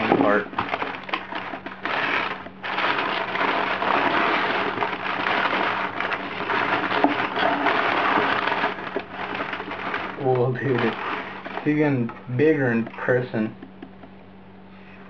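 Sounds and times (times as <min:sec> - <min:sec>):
packing paper crumpled and torn: 0:00.0 - 0:12.0.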